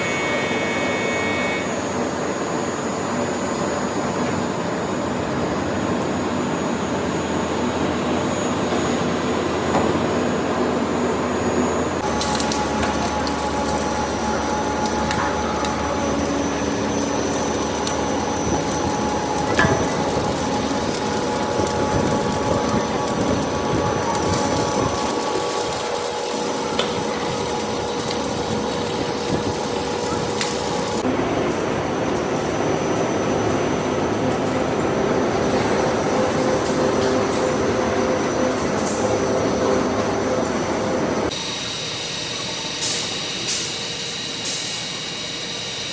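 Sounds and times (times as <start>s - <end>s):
machine whining tones: 0.0s - 9.7s, 11.2s - 31.0s, 41.2s - 45.9s
factory machinery running: 0.0s - 45.9s.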